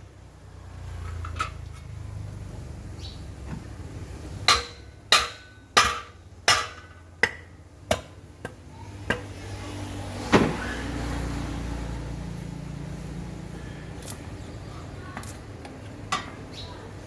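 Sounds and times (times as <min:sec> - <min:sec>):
hammer striking metal: 0:04.4 - 0:09.3.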